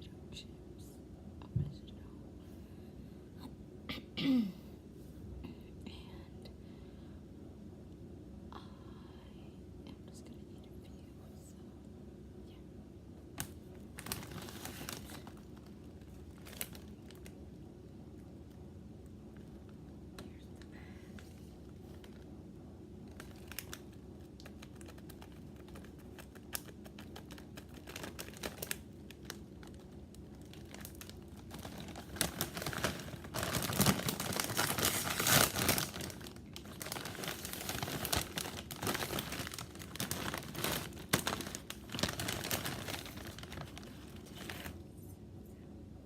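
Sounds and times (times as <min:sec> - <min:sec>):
chip bag crinkling: 0:13.4 - 0:17.4, 0:21.1 - 0:22.3, 0:23.0 - 0:44.8.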